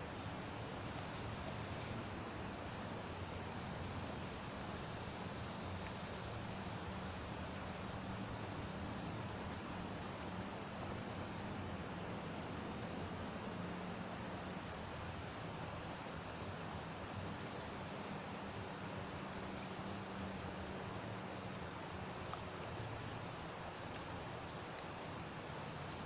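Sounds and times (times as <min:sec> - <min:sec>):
insects trilling: 0:00.0 - 0:26.0
steady hiss: 0:00.0 - 0:26.0.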